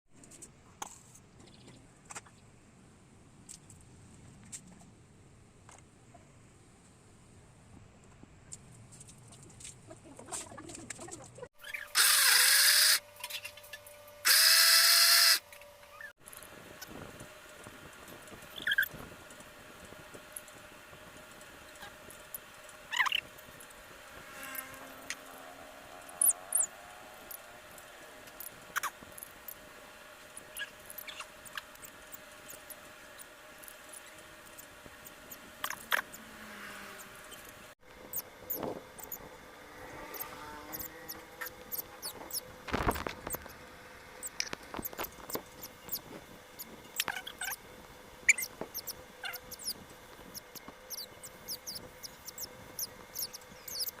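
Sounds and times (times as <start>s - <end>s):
parrot chicks squeaking: 18.5s - 18.9s, 22.9s - 23.2s, 26.2s - 26.7s, 30.4s - 31.9s, 38.1s - 39.2s, 40.1s - 43.6s, 44.2s - 47.6s, 48.3s - 54.0s.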